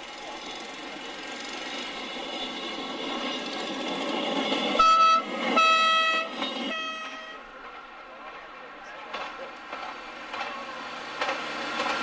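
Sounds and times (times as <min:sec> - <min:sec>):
moving train noise: 0:00.0 - 0:12.0
locomotive horn blasts: 0:04.8 - 0:07.5.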